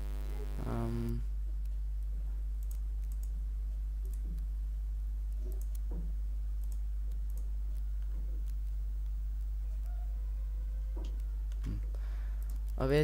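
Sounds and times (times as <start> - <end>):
steady low hum: 0.0 - 13.0
mouse and keyboard clicks: 5.3 - 5.9.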